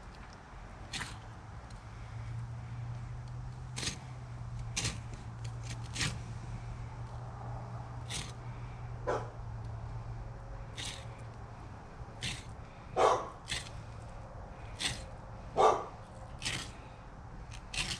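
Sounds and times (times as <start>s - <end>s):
steady low hum: 0.0s - 17.9s
knife scraping fish scales: 3.8s - 4.1s, 4.8s - 6.2s, 8.1s - 8.4s, 10.8s - 11.2s, 12.2s - 12.5s, 13.5s - 13.8s, 14.7s - 15.2s, 16.3s - 16.9s, 17.5s - 17.9s
dog barking: 9.0s - 9.4s, 13.0s - 13.7s, 15.6s - 16.6s.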